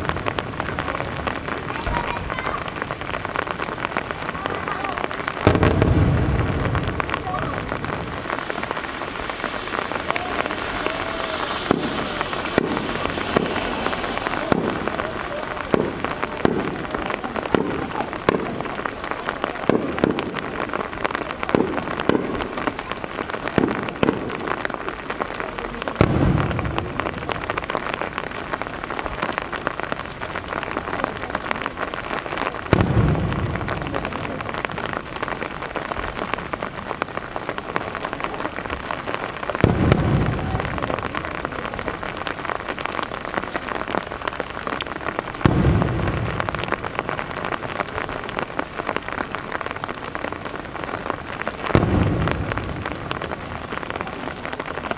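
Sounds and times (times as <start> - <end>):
sharp firework pops: 0.0 - 54.9
steady rain: 0.0 - 54.9
deep booms of aerial shells: 5.5 - 16.0.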